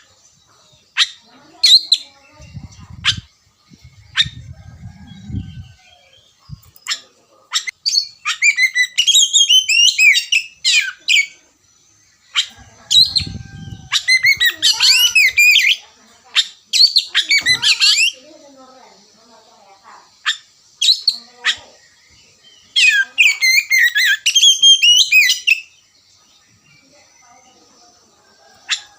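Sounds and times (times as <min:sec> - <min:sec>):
bird singing whistles and chirps: 0:00.0 - 0:11.4, 0:12.2 - 0:15.8, 0:20.2 - 0:27.3.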